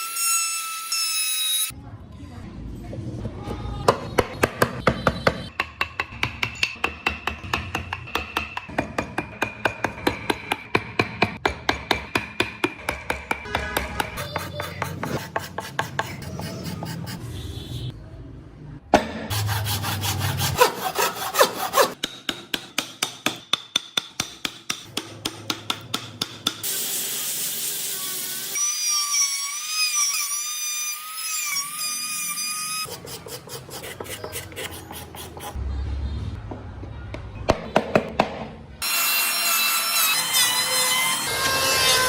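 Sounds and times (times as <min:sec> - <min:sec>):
hand saw and rasp on wood: 0:13.8 - 0:17.2, 0:19.3 - 0:22.8, 0:32.8 - 0:35.6.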